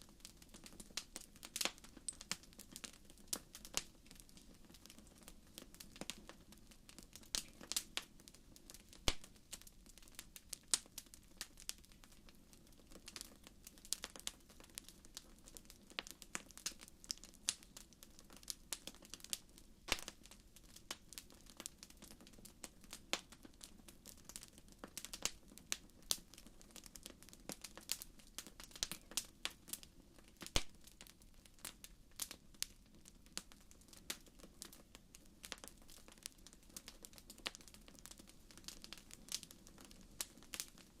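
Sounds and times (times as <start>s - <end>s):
fire pops and snaps: 0.1s - 41.0s.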